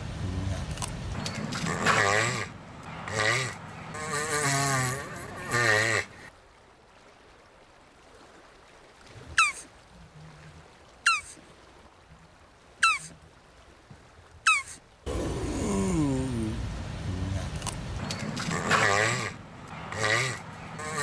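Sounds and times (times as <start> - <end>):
faint low grunts: 0.0 - 6.3, 15.1 - 21.0
tortoise groaning: 0.0 - 6.3, 14.5 - 21.0
tortoise high calls: 0.0 - 6.3, 9.4 - 9.7, 11.0 - 11.4, 12.8 - 13.2, 14.4 - 21.0.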